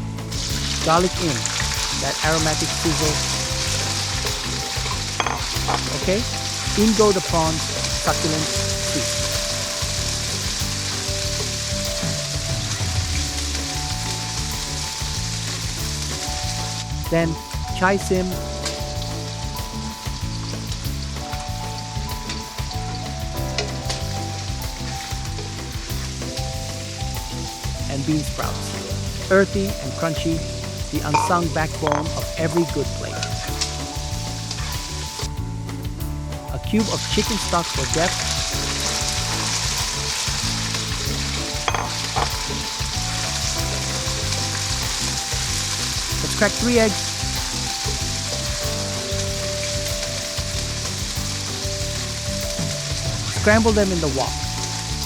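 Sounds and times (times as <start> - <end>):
vegetables sizzling in hot oil: 0.0 - 35.9, 36.8 - 55.0
sharp knocks: 38.5 - 45.1.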